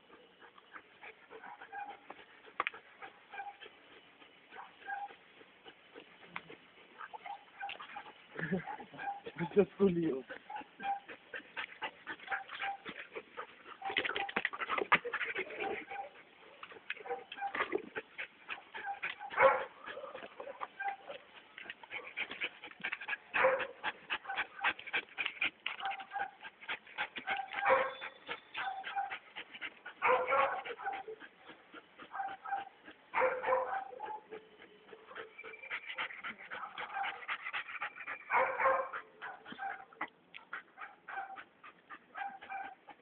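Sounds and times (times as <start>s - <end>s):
dog whining and yipping: 4.8s - 5.2s, 18.7s - 20.2s, 27.2s - 29.2s.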